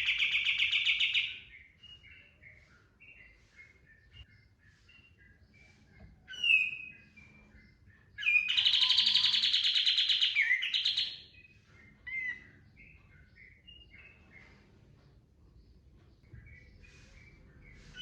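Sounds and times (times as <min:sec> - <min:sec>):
bird chirping: 0:00.0 - 0:18.0
rapid rattling birdsong: 0:00.0 - 0:18.0.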